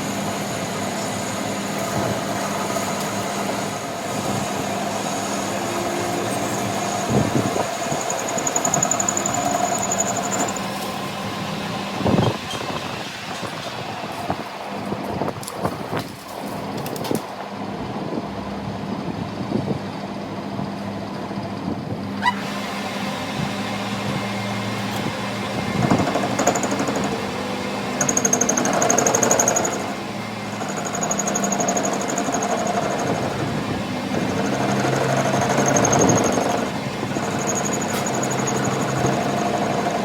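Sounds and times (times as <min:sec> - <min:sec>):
workshop machinery humming: 0:00.0 - 0:40.0
rapid high-pitched buzzing: 0:04.9 - 0:10.7, 0:25.8 - 0:40.0.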